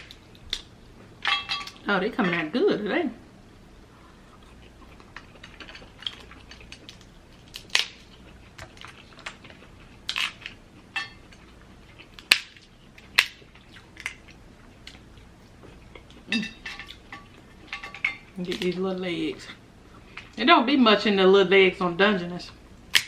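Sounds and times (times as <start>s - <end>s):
crab shells cracking: 0.0s - 1.8s, 4.5s - 18.8s.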